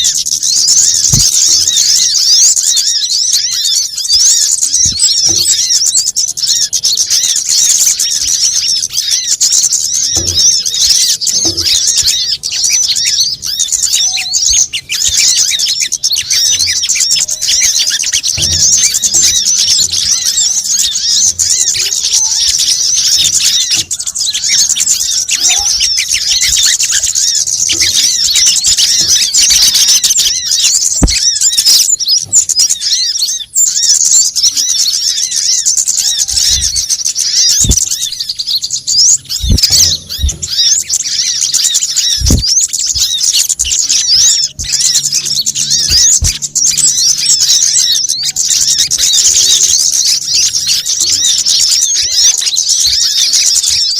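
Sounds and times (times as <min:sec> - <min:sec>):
songbirds chirping: 0:00.0 - 0:53.9
low thumps: 0:00.8 - 0:01.7, 0:10.1 - 0:12.3, 0:37.5 - 0:38.2, 0:39.2 - 0:41.2, 0:42.0 - 0:47.3.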